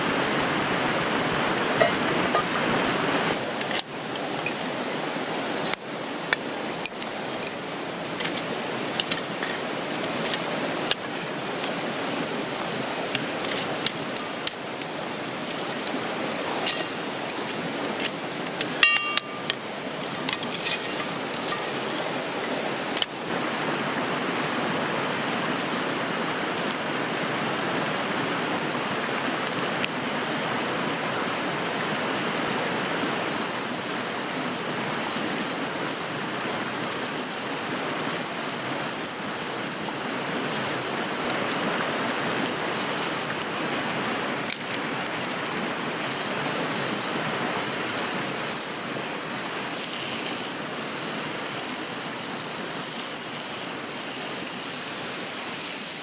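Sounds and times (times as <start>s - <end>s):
food sizzling in a pan: 0.0s - 23.3s, 33.2s - 41.3s, 45.9s - 56.0s
campfire crackling: 0.0s - 23.4s, 33.0s - 56.0s
metal clinking: 0.1s - 23.3s.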